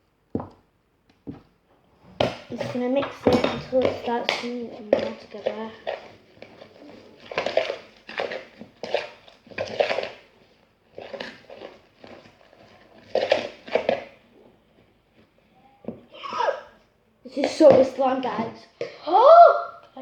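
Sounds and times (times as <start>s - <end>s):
slime squishing: 2.2s - 19.0s.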